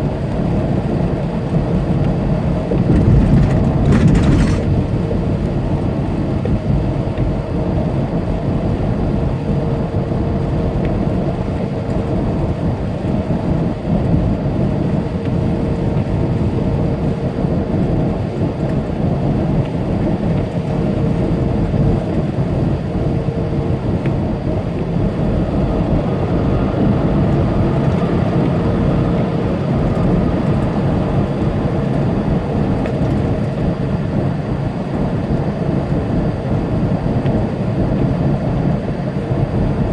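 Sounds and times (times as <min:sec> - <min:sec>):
diesel engine drone: 0:00.0 - 0:18.1, 0:19.0 - 0:39.9
tyres on road: 0:02.2 - 0:07.1.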